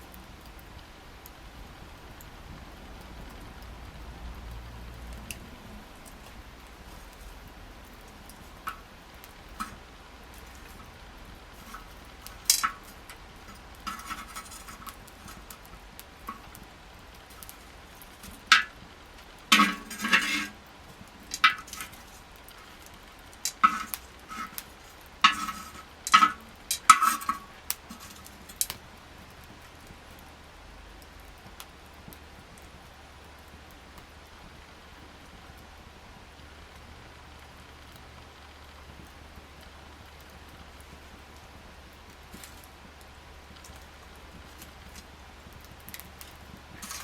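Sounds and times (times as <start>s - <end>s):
metal clinking and knocking: 8.0s - 8.9s, 9.5s - 16.6s, 17.3s - 18.8s, 19.5s - 20.6s, 21.2s - 22.8s, 23.5s - 28.8s, 46.7s - 47.0s.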